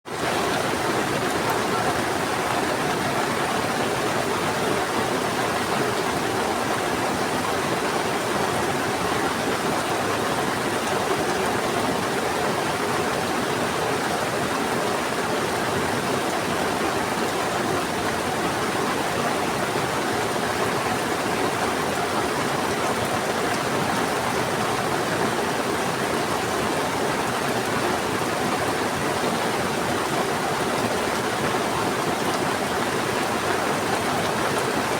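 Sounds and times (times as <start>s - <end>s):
fast-flowing river: 0.1s - 34.9s
heavy rain: 0.1s - 34.9s.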